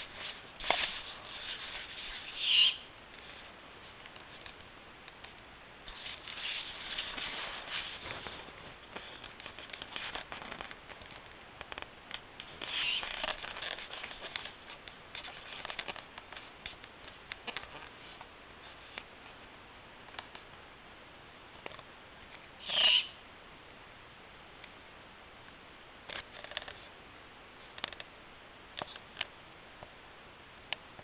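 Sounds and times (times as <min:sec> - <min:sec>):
light scratching and rustling: 0:00.0 - 0:04.7, 0:05.8 - 0:11.9.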